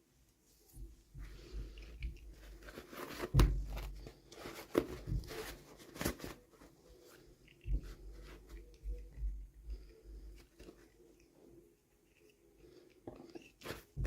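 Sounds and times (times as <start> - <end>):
packaging rustling and crackling: 1.8 - 7.0.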